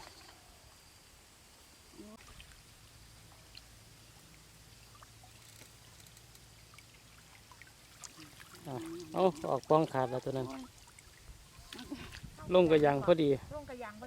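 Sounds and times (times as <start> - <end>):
small drip-like ticks: 2.0 - 12.3.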